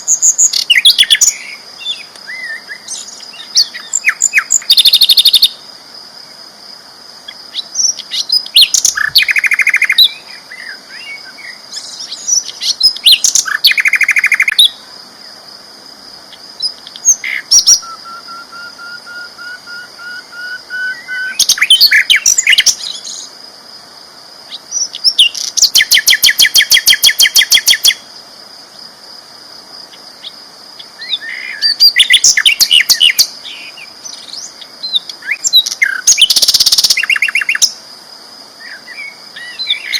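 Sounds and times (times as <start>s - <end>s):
rising thin bird whistle: 17.2s - 22.6s.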